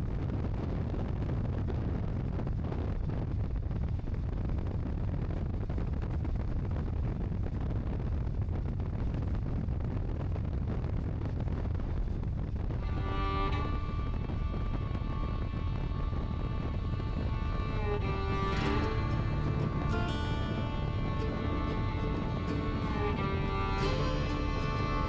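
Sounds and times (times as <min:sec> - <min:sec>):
wind noise on microphone: 0:00.0 - 0:25.0
music: 0:12.8 - 0:25.0.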